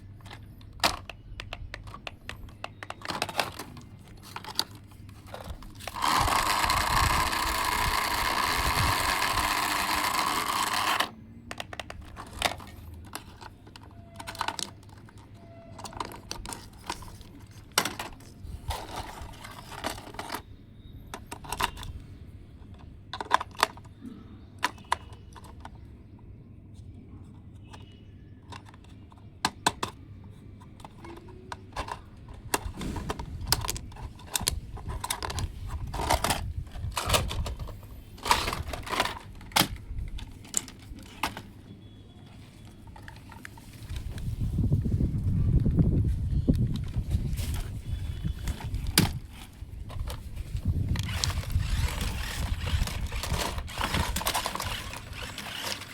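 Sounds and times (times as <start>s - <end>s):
small hard parts clicking: 0.0s - 20.5s, 21.1s - 25.9s, 30.6s - 41.6s, 48.0s - 55.9s
electric motor whirring: 5.8s - 11.1s.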